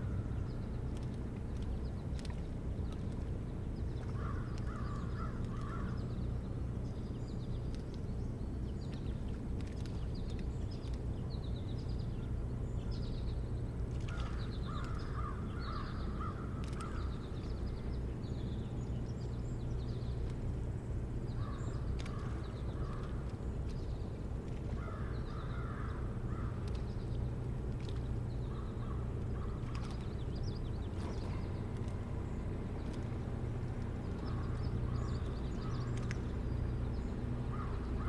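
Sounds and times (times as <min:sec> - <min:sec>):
steady low rumble: 0:00.0 - 0:38.0.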